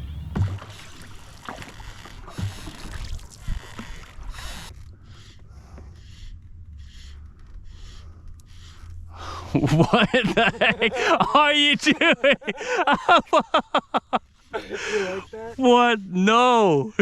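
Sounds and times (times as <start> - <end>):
water sloshing: 0.0 - 5.0.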